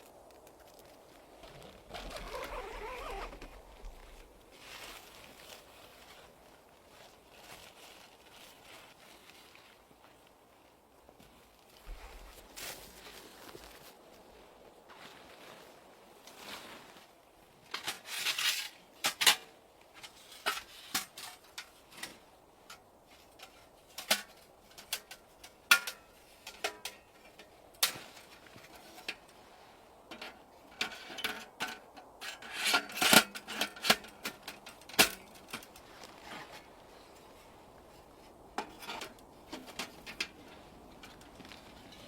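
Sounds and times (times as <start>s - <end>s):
scraping and rubbing: 1.6s - 4.2s.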